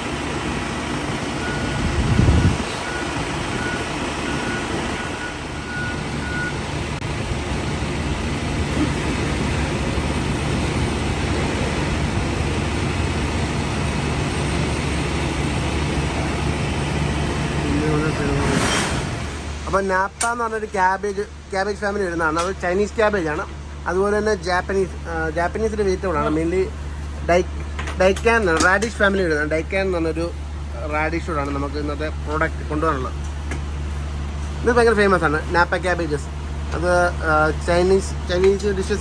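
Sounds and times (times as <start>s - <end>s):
heavy vehicle engine running: 0.0s - 39.0s
reversing alarm beeping: 1.3s - 6.8s.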